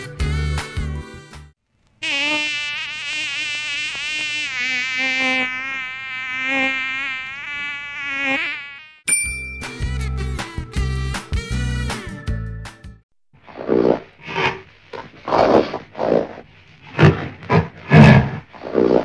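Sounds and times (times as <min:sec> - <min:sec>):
mosquito whine: 0:02.0 - 0:09.0
short chime: 0:09.1 - 0:10.1.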